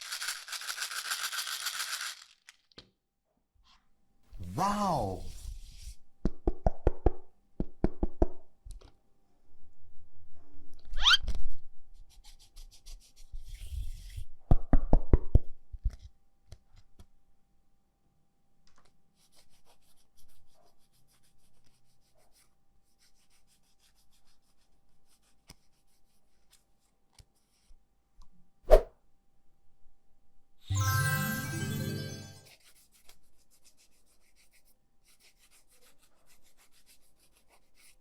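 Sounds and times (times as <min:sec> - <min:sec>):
small hard objects clicking: 0:00.0 - 0:02.7.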